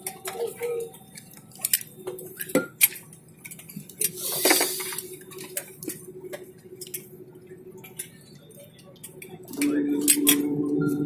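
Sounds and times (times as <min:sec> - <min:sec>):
steady hum: 0:04.0 - 0:11.0.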